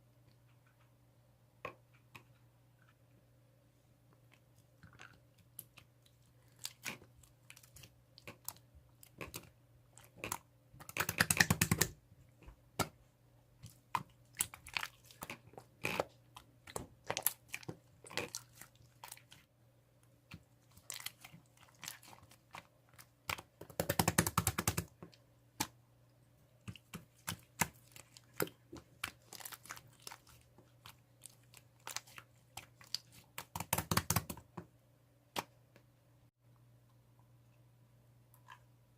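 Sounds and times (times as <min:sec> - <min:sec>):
slime crackling: 0:26.7 - 0:34.0.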